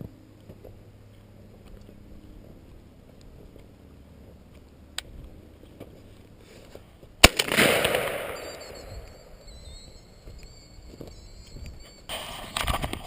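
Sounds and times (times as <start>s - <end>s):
shotgun shot echoing: 7.2s - 8.8s.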